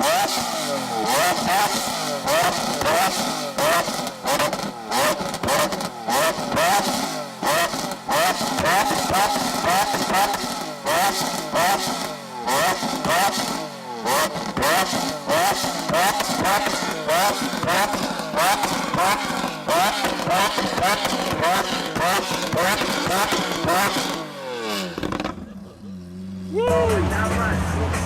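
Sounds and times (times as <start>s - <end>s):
car engine revving in blips: 0.0s - 28.0s
exhaust crackles and pops: 14.2s - 25.8s.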